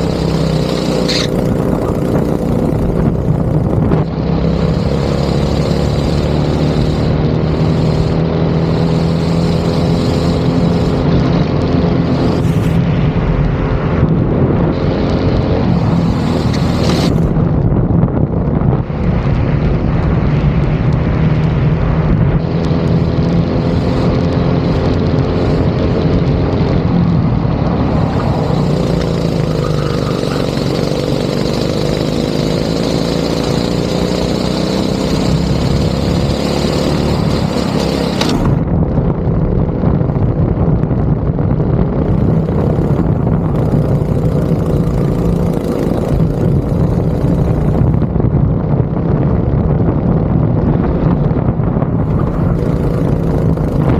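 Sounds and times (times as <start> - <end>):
go-kart engine revving: 0.0 - 17.6, 22.4 - 38.7, 41.8 - 48.2, 51.8 - 53.9.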